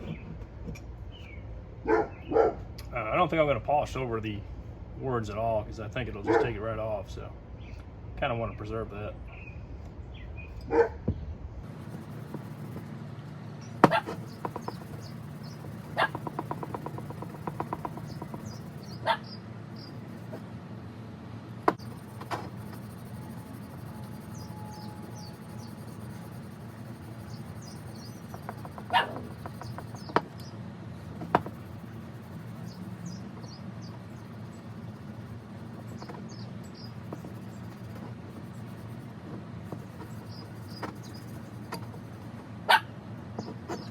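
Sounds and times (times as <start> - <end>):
steady low hum: 0.0 - 43.9
faint high squeaks: 21.8 - 26.3.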